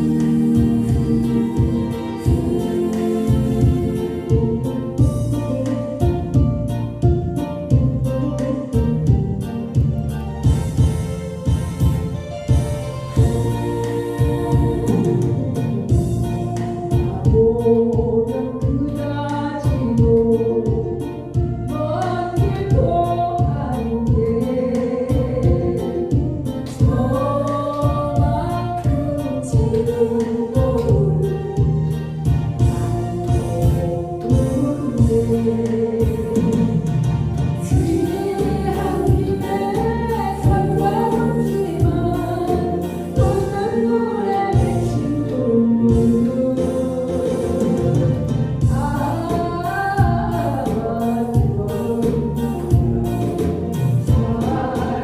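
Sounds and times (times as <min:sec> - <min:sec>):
backing track with steady beat: 0:00.0 - 0:55.0.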